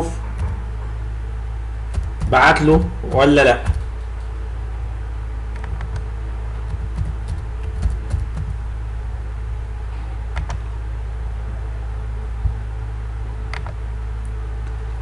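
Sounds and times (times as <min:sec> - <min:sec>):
low electrical hum: 0:00.0 - 0:15.0
keyboard and mouse clicks: 0:03.1 - 0:04.3, 0:05.6 - 0:06.0, 0:06.7 - 0:08.6, 0:10.3 - 0:10.6, 0:13.5 - 0:13.8.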